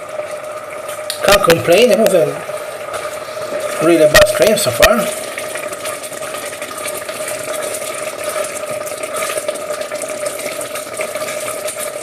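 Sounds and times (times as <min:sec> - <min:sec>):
risotto bubbling in a pan: 0:00.0 - 0:12.0
steady hum: 0:00.0 - 0:12.0.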